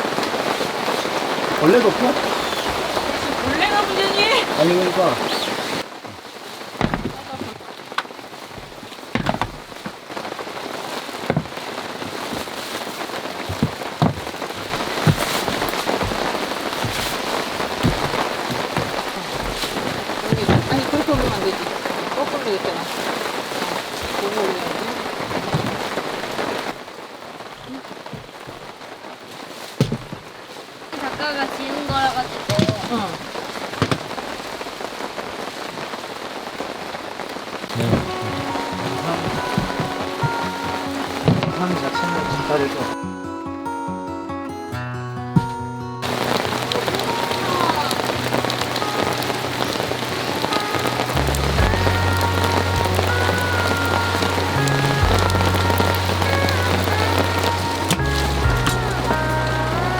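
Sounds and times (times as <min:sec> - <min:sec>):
heavy rain falling: 0:00.0 - 0:43.0, 0:46.0 - 0:59.9
sharp drops or knocks: 0:06.8 - 0:07.6, 0:08.6 - 0:10.0.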